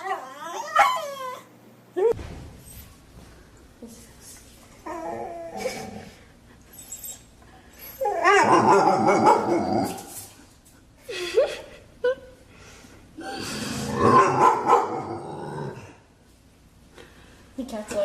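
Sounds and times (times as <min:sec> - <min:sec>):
dog whining and yelping: 0:00.0 - 0:01.5, 0:06.7 - 0:10.0.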